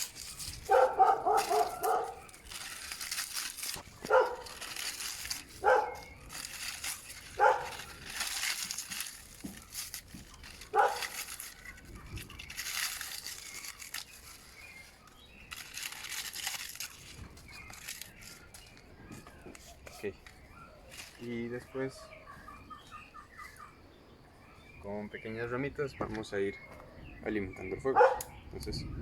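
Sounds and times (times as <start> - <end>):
dry leaves crumpled by hand: 0.0 - 23.6
dog barking: 0.6 - 2.3, 4.0 - 4.6, 5.6 - 6.1, 7.4 - 7.8, 10.7 - 11.1, 27.9 - 28.4.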